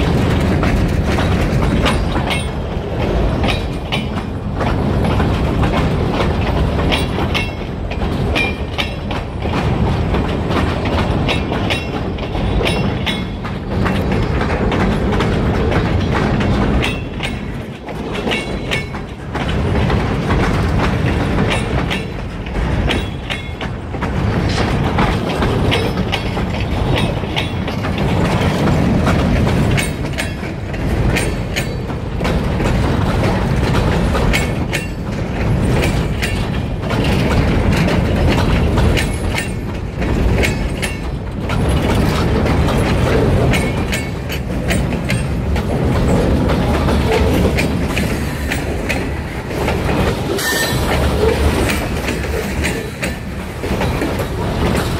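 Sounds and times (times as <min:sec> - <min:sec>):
freight train rumbling past: 0:00.0 - 0:54.9
wheels clicking over rail joints: 0:00.0 - 0:54.9.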